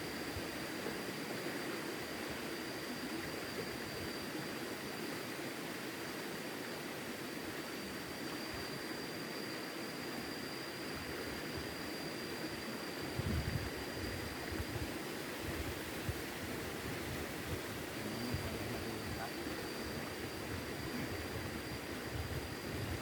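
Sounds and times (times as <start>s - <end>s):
thin high whine: 8.2s - 23.0s.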